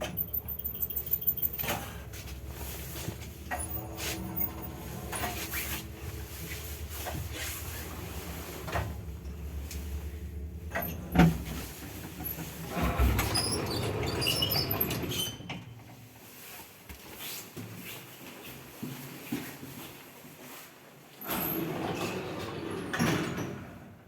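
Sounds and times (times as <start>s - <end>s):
rattling with high squeaks: 0.0s - 2.1s, 3.5s - 5.8s
lift machinery hum: 0.0s - 14.0s.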